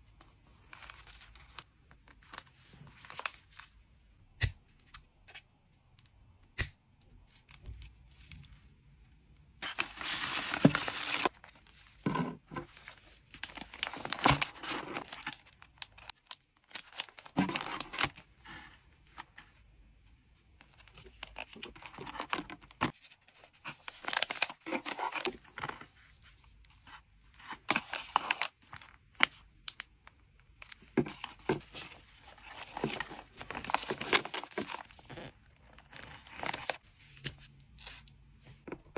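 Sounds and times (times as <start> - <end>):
plastic packaging crinkling: 31.2 - 36.8.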